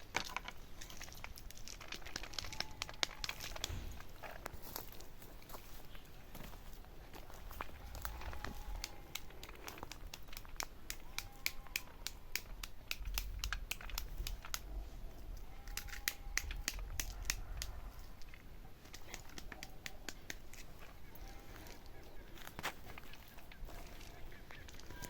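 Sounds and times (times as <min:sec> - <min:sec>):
crinkling and crackling: 0:00.0 - 0:25.0.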